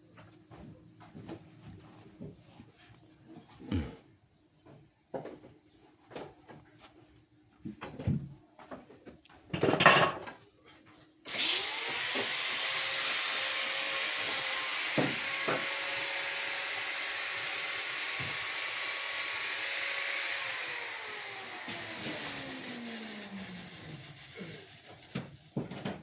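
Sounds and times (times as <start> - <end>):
electric motor spinning: 11.3 - 25.6.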